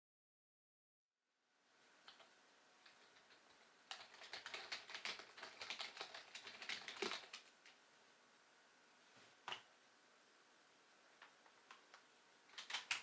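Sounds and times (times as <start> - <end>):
keyboard typing: 2.9 - 7.5, 11.7 - 13.0.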